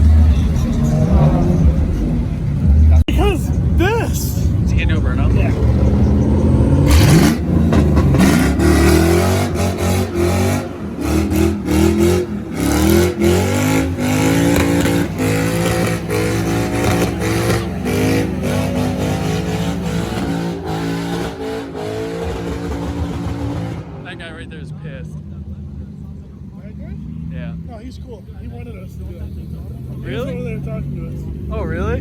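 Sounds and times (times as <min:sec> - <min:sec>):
engine revving hard: 0:04.8 - 0:24.5.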